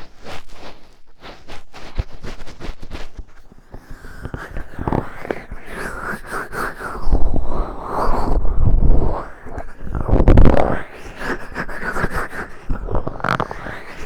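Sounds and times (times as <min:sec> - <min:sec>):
fingertip scratching in ear: 0:04.0 - 0:14.0.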